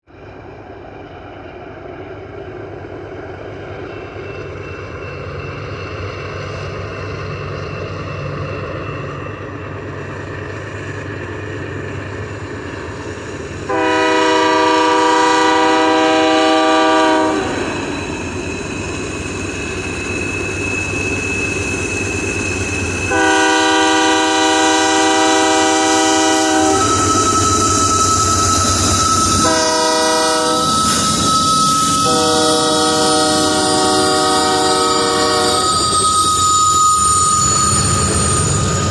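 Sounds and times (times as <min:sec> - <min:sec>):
diesel locomotive engine rumble: 0:00.1 - 0:38.9
multi-note air horn blasts: 0:13.7 - 0:17.6, 0:23.1 - 0:27.0, 0:29.4 - 0:30.7, 0:32.0 - 0:35.7.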